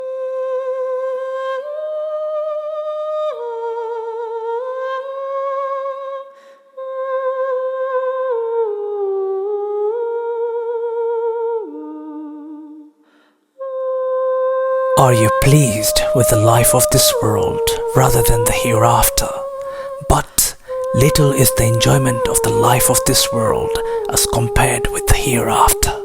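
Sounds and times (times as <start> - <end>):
person humming a slow melody: 6.8 - 13.0, 13.6 - 26.0.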